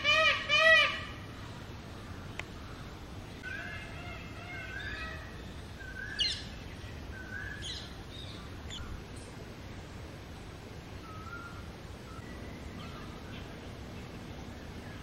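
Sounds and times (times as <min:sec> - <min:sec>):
birds whistling calls: 0:02.2 - 0:09.3, 0:11.0 - 0:13.6.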